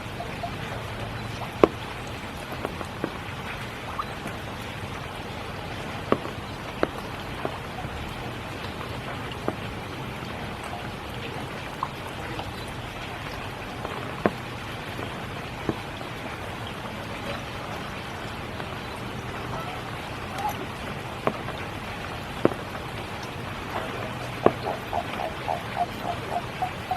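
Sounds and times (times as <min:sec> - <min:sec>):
heavy raindrops tapping: 0:00.0 - 0:26.9
steady rain falling: 0:00.0 - 0:26.9.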